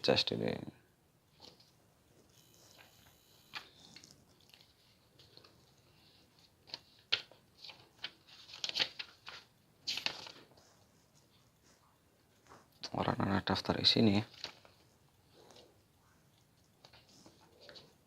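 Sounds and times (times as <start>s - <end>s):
paper pages rustling: 2.4s - 13.1s, 14.0s - 15.7s, 16.4s - 18.0s.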